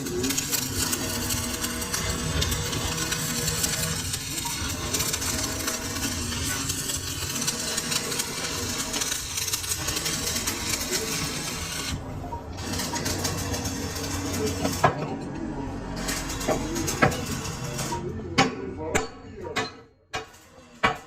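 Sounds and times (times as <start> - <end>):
cutting tool scraping steel: 0.0 - 12.0.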